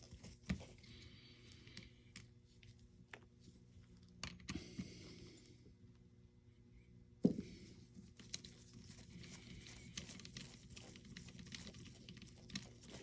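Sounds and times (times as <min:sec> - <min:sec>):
low electrical hum: 0:00.0 - 0:13.0
light rustle of handled parts: 0:07.2 - 0:13.0.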